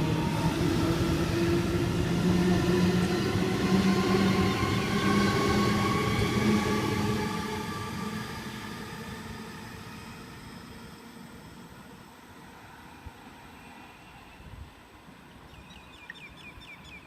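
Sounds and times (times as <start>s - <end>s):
rumble of train wheels: 0.0s - 13.4s.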